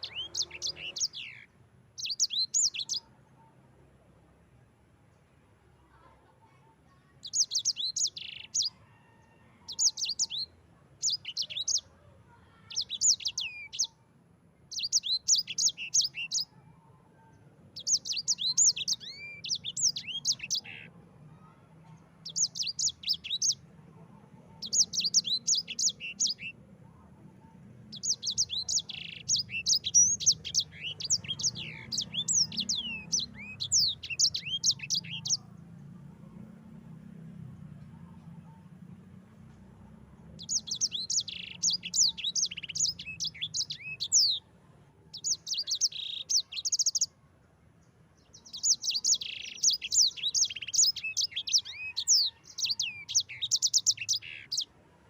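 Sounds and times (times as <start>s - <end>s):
canary singing: 0.0s - 3.2s, 7.2s - 14.0s, 14.6s - 21.6s, 22.2s - 26.8s, 27.4s - 36.0s, 40.2s - 44.5s, 45.1s - 47.2s, 48.2s - 54.8s.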